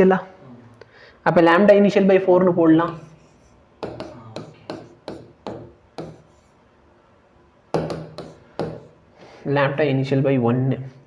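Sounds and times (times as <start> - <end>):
pen scratching while writing: 2.9 - 6.6, 7.9 - 8.9.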